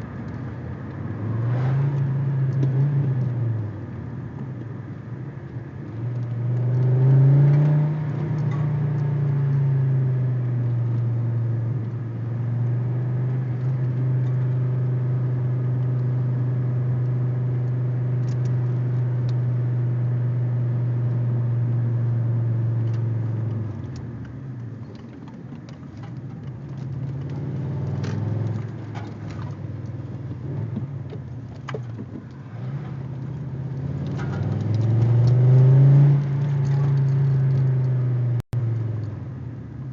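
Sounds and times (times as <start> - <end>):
car engine revving: 1.0 - 3.7, 26.7 - 39.1.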